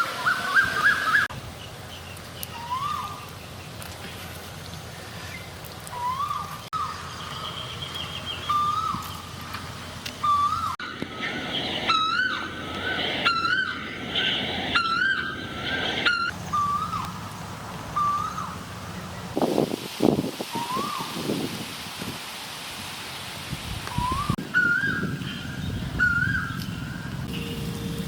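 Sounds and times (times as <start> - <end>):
wavering bird calls: 0.0 - 3.8, 5.0 - 9.4, 10.1 - 17.2, 17.9 - 18.6, 23.9 - 27.6
bird trill: 2.5 - 3.3, 6.0 - 9.3, 10.2 - 17.1, 24.0 - 27.9
whistled bird note: 2.5 - 3.3, 5.9 - 9.3, 10.2 - 17.1, 20.5 - 21.2, 23.9 - 27.6.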